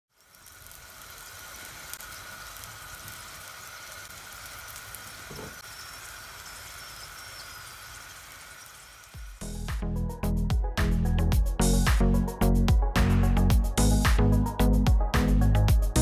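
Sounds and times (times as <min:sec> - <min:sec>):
food sizzling in hot oil: 0:00.1 - 0:10.2.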